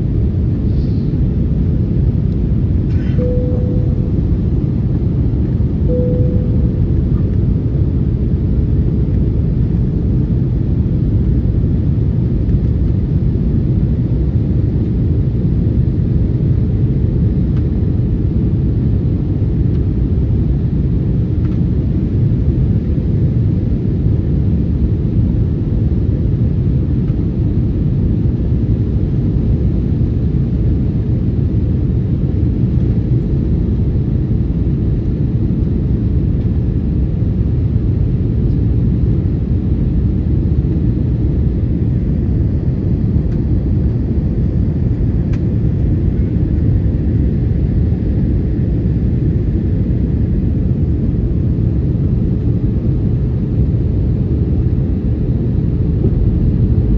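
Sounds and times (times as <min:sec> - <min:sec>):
faint steady hum: 0:00.0 - 0:20.2
aircraft cabin engine rumble: 0:00.0 - 0:56.9.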